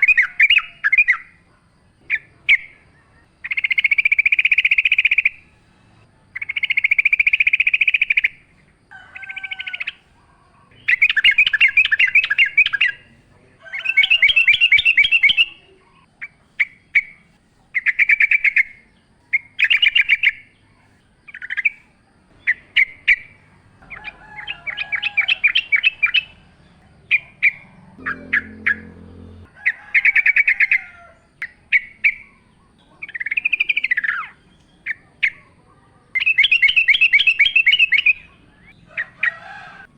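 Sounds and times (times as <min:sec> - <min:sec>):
bird chirps: 0:00.0 - 0:35.5, 0:36.2 - 0:39.4
bird singing bubbling phrases: 0:10.7 - 0:13.1, 0:13.8 - 0:17.2, 0:27.1 - 0:29.5, 0:31.4 - 0:35.4, 0:36.2 - 0:38.8
low croaking sound: 0:26.3 - 0:30.3.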